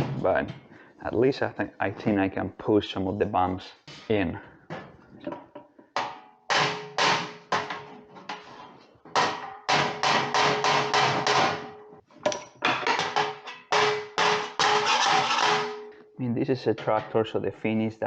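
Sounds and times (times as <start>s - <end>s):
hammer tapping sheet metal: 9.2s - 15.9s.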